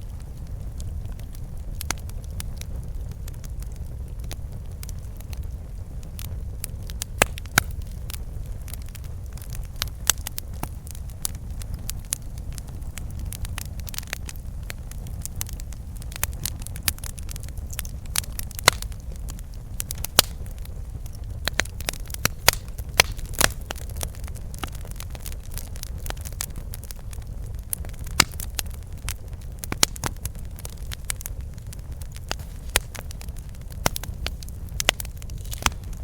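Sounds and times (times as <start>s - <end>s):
campfire wood crackling and popping: 0.0s - 36.0s
low fire rumble: 0.0s - 36.0s.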